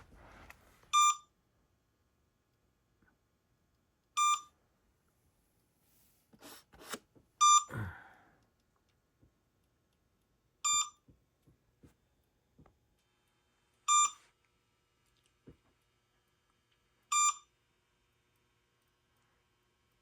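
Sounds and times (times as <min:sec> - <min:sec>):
electronic alert beeps: 0:10.7 - 0:11.0.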